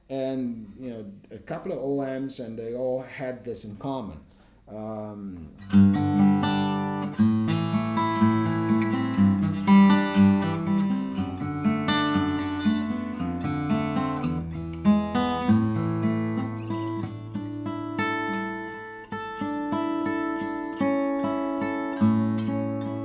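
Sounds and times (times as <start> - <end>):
acoustic guitar plucked chords: 5.3 - 23.0.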